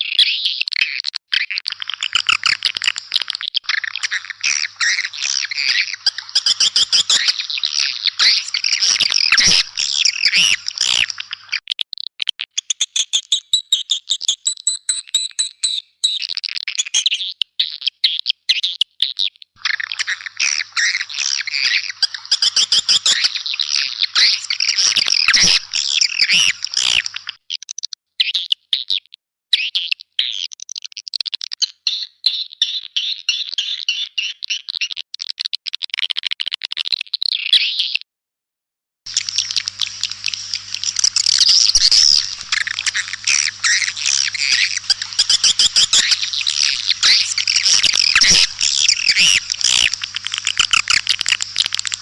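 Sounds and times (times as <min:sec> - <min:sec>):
swiftlets chirping and twittering: 0:01.7 - 0:11.6, 0:19.6 - 0:27.4, 0:39.1 - 0:52.0.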